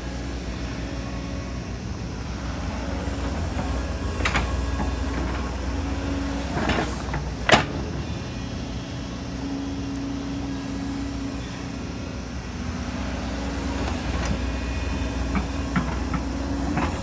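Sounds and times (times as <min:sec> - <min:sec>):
excavator diesel engine running: 0:00.0 - 0:17.0
machine clanks: 0:02.9 - 0:08.6, 0:13.4 - 0:17.0.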